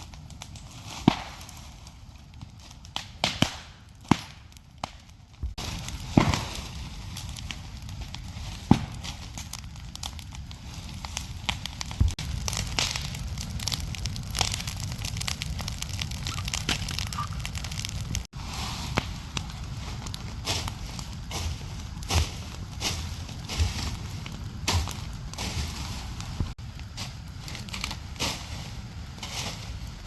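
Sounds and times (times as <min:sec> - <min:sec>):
sharp crackling clicks: 0:11.0 - 0:18.3.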